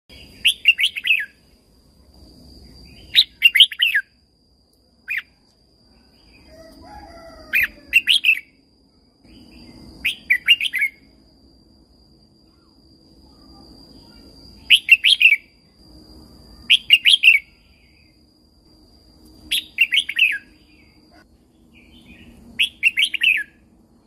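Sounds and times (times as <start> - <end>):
thin steady high tone: 0.1 - 24.0
bulbul singing warbled phrases: 13.4 - 15.4.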